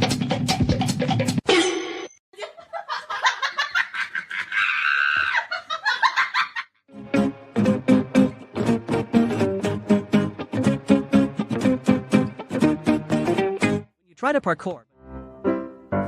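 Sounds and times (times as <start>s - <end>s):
drum-backed music: 0.0s - 1.4s
people laughing: 2.4s - 6.7s.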